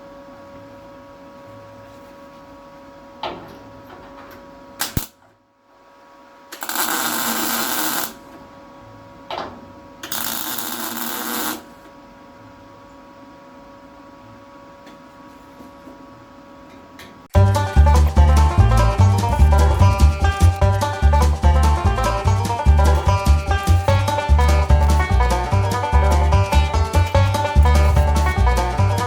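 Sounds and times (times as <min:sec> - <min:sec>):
steady background hum: 0:00.0 - 0:29.0
welding crackle: 0:06.6 - 0:08.2, 0:10.0 - 0:11.7.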